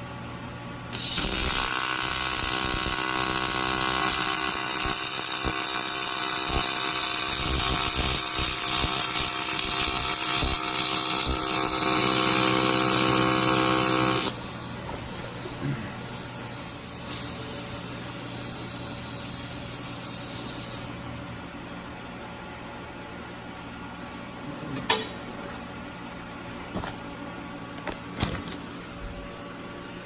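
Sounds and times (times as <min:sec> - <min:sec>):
welding arc buzzing with hiss: 0:00.9 - 0:21.0.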